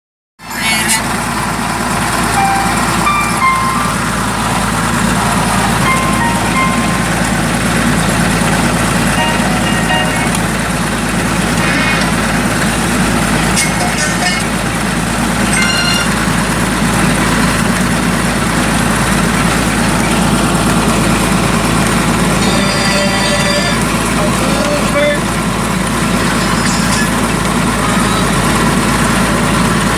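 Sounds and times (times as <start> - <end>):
road noise: 0.4 - 29.9
truck engine running: 0.4 - 29.9
short high tones: 2.2 - 10.8, 15.4 - 16.4.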